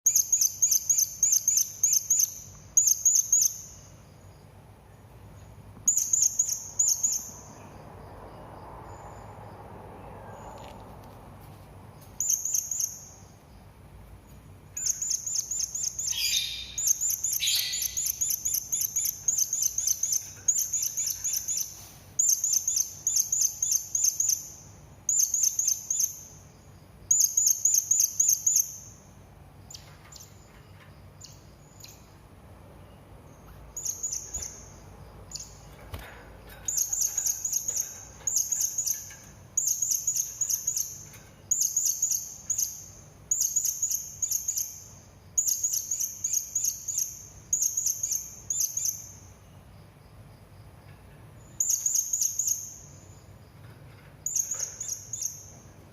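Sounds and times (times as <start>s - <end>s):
parrot chittering: 15.0s - 21.6s.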